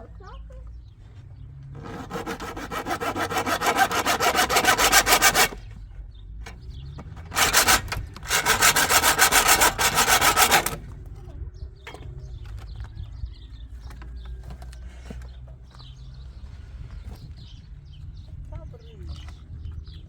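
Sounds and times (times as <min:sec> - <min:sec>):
hand saw cutting: 0:01.8 - 0:05.6, 0:07.3 - 0:10.8.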